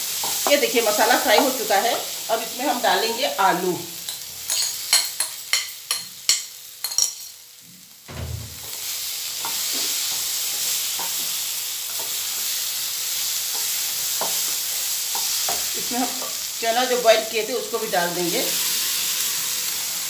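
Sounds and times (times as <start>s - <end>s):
oil sizzling: 0.0s - 20.0s
soft thump into oil: 8.1s - 8.7s.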